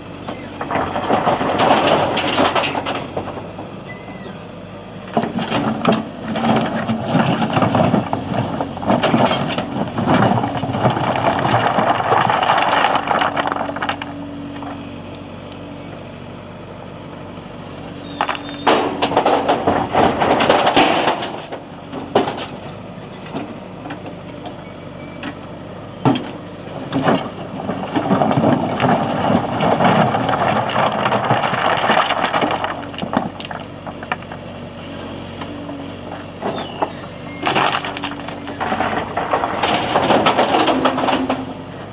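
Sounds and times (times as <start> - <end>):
diesel engine running: 0.0 - 41.9
rocks clattering against steel: 0.6 - 3.5, 5.1 - 14.8, 18.1 - 24.1, 26.0 - 34.5, 36.1 - 41.6.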